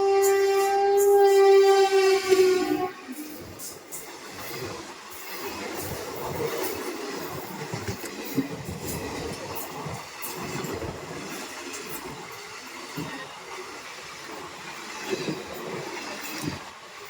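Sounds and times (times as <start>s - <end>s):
train wheels rumbling on track: 0.0s - 17.0s
wheels clicking over rail joints: 3.1s - 13.5s.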